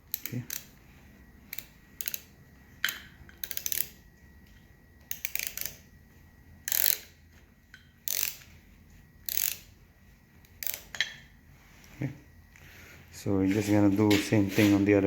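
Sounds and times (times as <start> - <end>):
wrench rapid clicking: 2.9 - 4.0, 6.7 - 7.1, 8.1 - 8.4.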